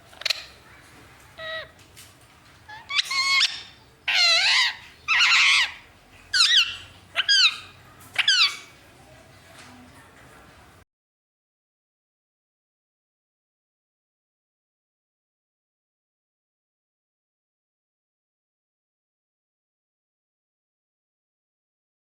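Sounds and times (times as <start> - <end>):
parrot screeching: 1.4 - 1.7, 2.7 - 8.7.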